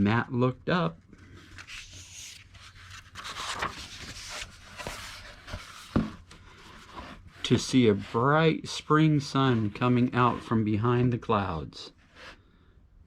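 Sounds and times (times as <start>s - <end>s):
book pages rustling: 1.0s - 8.0s.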